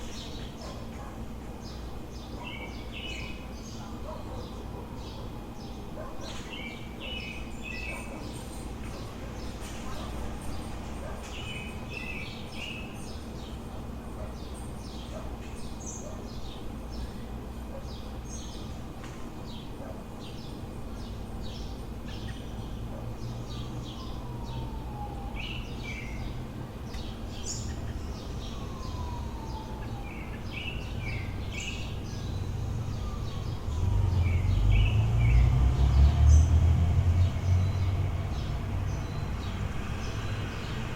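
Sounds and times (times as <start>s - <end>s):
low city hum: 0.0s - 40.9s
small birds chirping: 0.0s - 40.9s
heavy vehicle passing: 33.0s - 40.9s.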